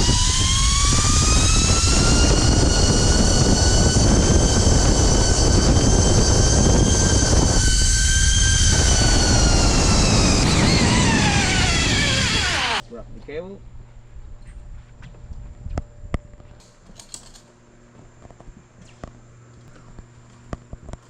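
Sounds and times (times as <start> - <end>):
wind rushing over microphone: 0.0 - 12.8
zipline pulleys whining on cable: 0.0 - 12.8.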